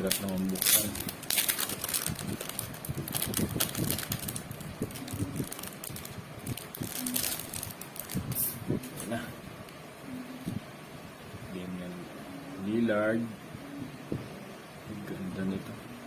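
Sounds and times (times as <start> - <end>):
foil wrapper crinkling: 0.0 - 9.1.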